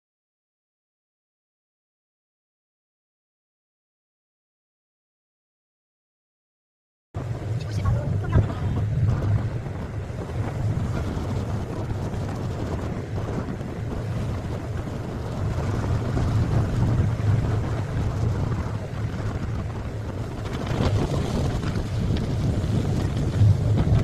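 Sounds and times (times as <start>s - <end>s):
ferry engine droning: 7.2s - 24.0s
wind gusts on microphone: 7.2s - 24.0s.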